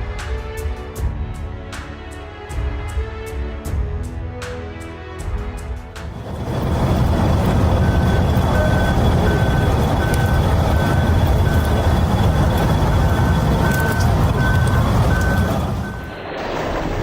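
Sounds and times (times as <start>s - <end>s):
deep rumble: 6.0s - 17.0s
reversing alarm beeping: 6.2s - 16.2s.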